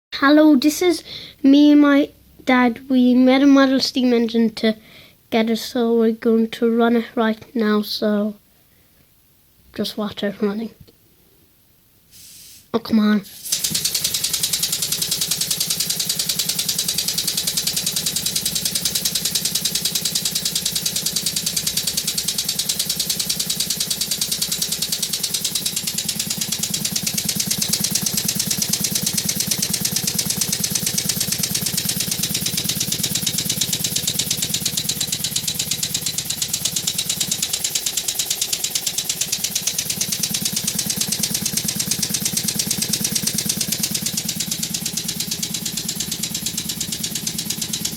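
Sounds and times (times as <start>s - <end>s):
model steam engine chuffing: 13.4s - 47.9s.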